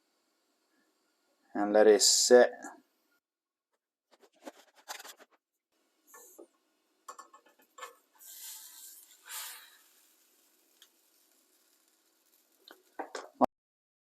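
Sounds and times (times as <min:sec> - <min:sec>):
frying pan hiss: 0:07.1 - 0:13.4
utensil scraping a frying pan: 0:07.2 - 0:13.2.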